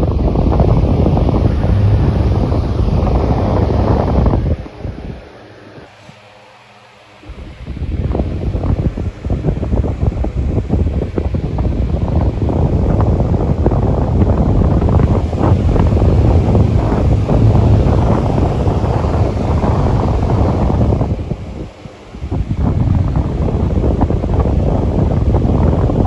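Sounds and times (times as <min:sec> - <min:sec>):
electric fan running: 0:00.0 - 0:05.8, 0:11.3 - 0:26.0
wind buffeting microphone: 0:00.0 - 0:05.9, 0:07.3 - 0:26.0.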